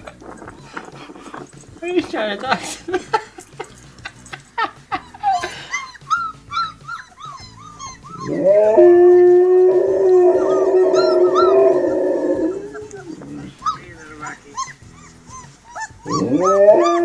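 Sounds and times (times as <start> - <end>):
puppies whimpering: 0.0 - 2.4, 4.9 - 17.0
dog howling: 5.3 - 17.0.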